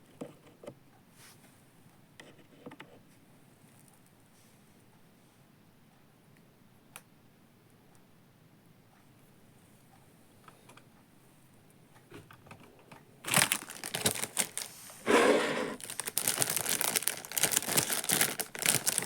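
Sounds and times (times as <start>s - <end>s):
plastic film crinkling: 13.3s - 19.0s.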